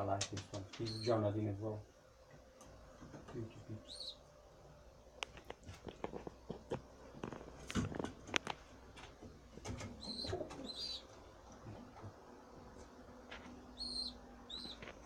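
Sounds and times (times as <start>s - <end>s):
high squeaky peeps: 0.8s - 1.2s, 3.8s - 4.2s, 10.0s - 11.1s, 13.7s - 14.8s
pigeon cooing: 9.8s - 12.1s, 13.8s - 14.9s.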